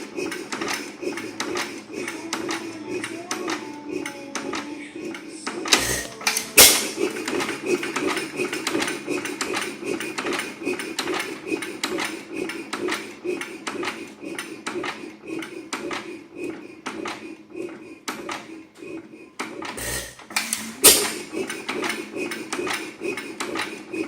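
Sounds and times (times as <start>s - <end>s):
hit-and-miss engine running: 0.0s - 18.3s.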